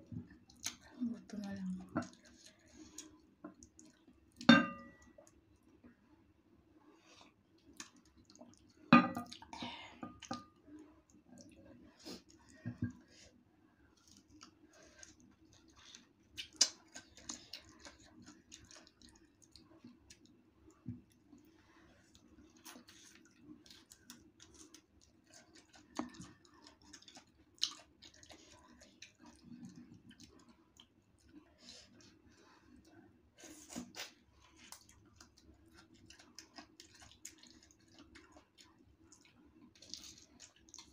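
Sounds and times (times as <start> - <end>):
crunchy chewing of mango: 13.9 - 20.4, 21.1 - 40.9.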